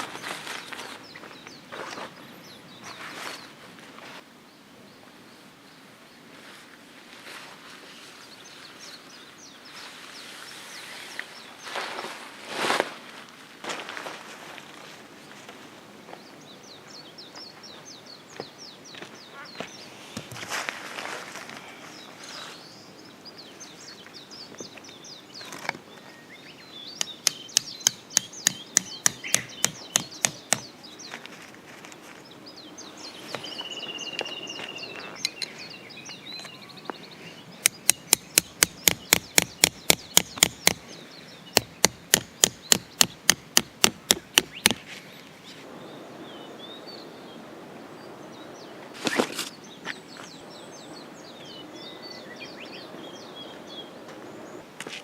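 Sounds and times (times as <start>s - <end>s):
sharp hand tool blows: 27.0s - 30.7s, 37.6s - 40.8s, 41.6s - 44.8s.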